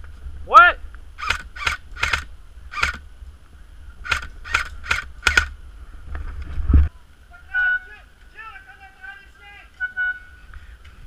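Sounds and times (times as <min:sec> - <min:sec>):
airsoft gun shots: 0:01.2 - 0:03.0, 0:04.0 - 0:05.5
faint low rumble: 0:02.2 - 0:07.4.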